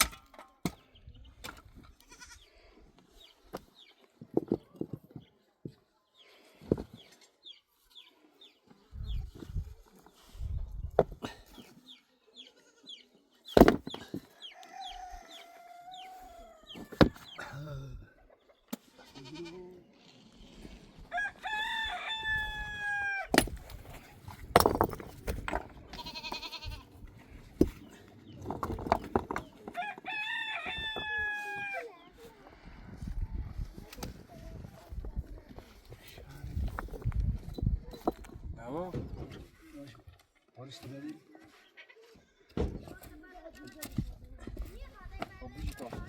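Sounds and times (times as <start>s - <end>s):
rooster crowing: 14.6s - 16.7s, 21.1s - 23.3s, 29.8s - 31.9s.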